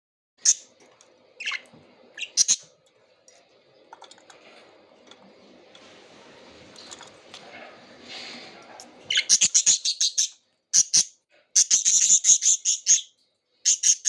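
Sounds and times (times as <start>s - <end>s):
budgerigars chirping: 0.4s - 0.8s, 1.4s - 2.7s, 9.1s - 14.0s.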